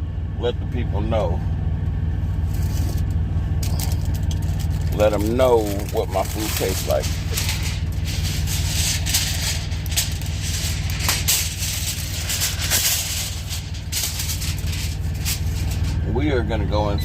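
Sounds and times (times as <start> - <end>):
engine idling drone: 0.0 - 17.0
light rattling: 2.4 - 16.1
constant hiss: 2.4 - 16.7.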